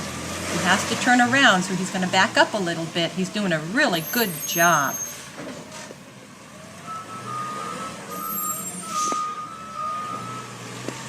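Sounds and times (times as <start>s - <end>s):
truck engine hum: 0.0s - 11.0s
back-up alarm beeping: 6.4s - 10.7s.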